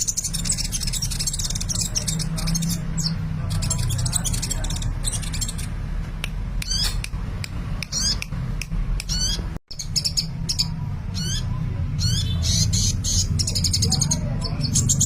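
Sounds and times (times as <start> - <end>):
bird singing high chirps: 0.0 - 5.8, 9.1 - 15.0.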